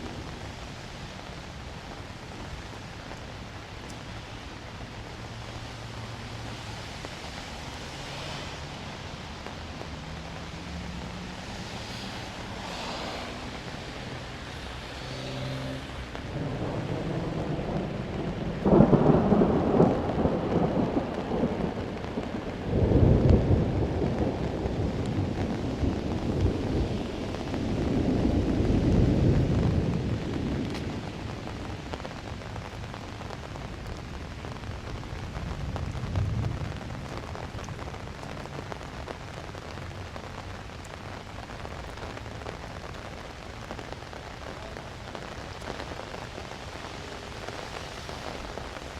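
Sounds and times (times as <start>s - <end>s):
steady rain: 0.0s - 48.9s
low rolling thunder: 16.2s - 40.0s
loud thunderclap: 16.3s - 31.3s.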